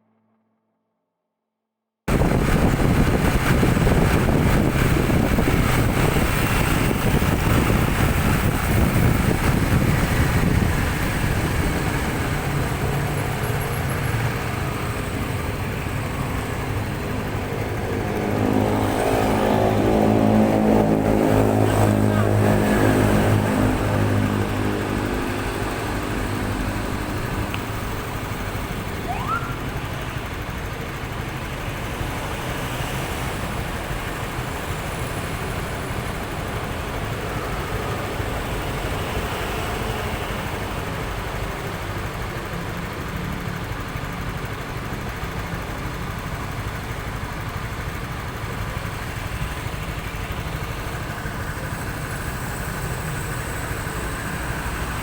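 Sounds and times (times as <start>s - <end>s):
vehicle engine and road noise: 2.1s - 55.0s
rising whistle: 29.0s - 29.7s.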